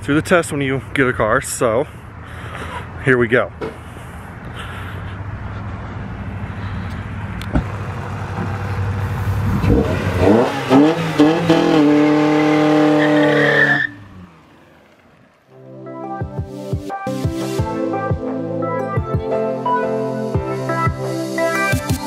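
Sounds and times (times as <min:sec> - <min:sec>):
car engine accelerating: 0:04.3 - 0:15.6
background music: 0:15.6 - 0:22.0.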